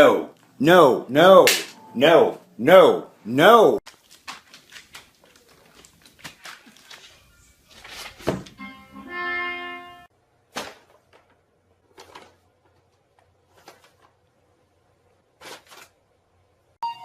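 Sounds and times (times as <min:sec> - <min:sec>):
music: 0:08.5 - 0:10.1.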